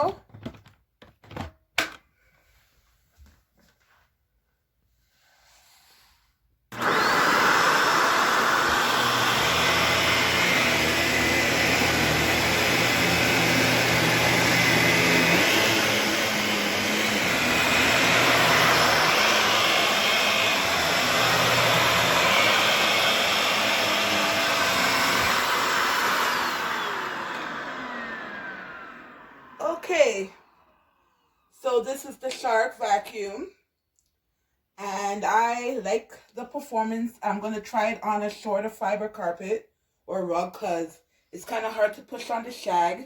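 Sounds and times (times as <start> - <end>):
vacuum cleaner motor whine: 6.7 - 29.9.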